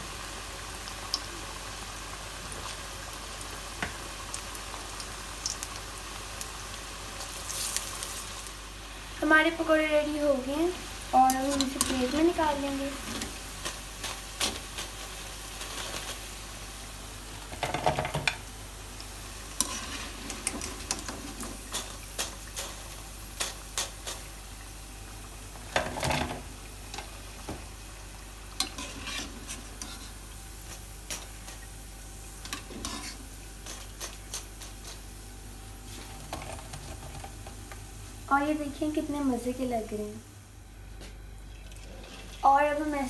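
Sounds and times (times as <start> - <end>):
food sizzling in frying oil: 0.0 - 40.5, 41.2 - 43.0
metal spoon scraping pan: 28.6 - 30.2, 32.5 - 35.0.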